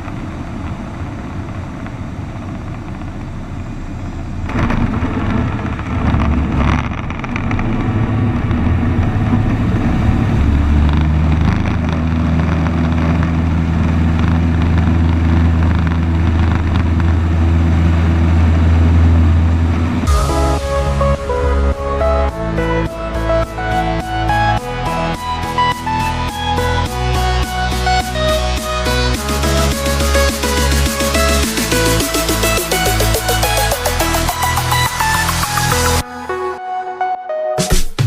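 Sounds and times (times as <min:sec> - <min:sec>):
propeller plane engine droning: 0:00.0 - 0:36.1.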